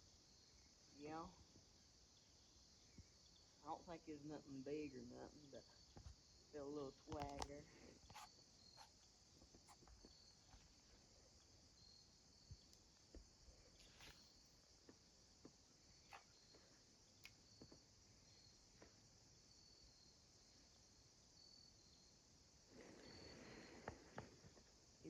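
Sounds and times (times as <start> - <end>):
insects chirring: 0.0 - 25.0
small clicks and taps: 7.1 - 7.6.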